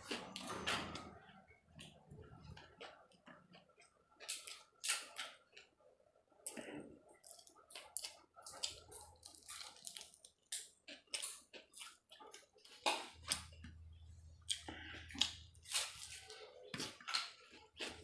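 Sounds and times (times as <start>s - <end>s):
person chewing and biting: 7.2s - 13.8s, 14.5s - 18.0s.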